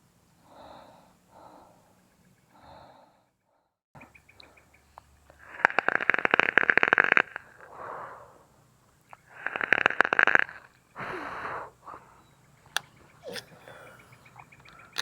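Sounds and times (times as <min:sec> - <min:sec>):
soft hissing: 0:11.7 - 0:15.0.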